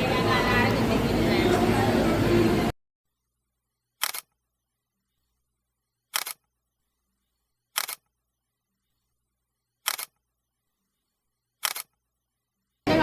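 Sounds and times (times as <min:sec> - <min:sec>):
camera shutter double clicks: 0:04.0 - 0:04.3, 0:06.2 - 0:06.4, 0:07.8 - 0:08.0, 0:09.9 - 0:10.2, 0:11.6 - 0:11.9.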